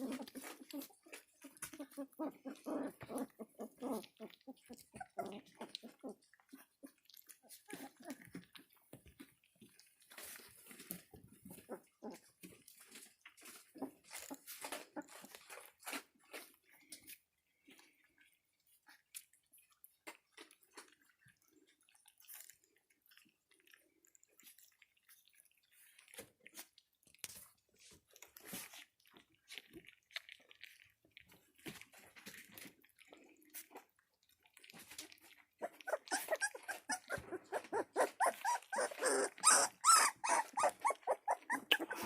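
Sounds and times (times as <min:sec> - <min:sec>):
puppy whining and yelping: 0:00.0 - 0:16.1, 0:34.8 - 0:42.0
puppies lapping and chewing: 0:00.0 - 0:42.0.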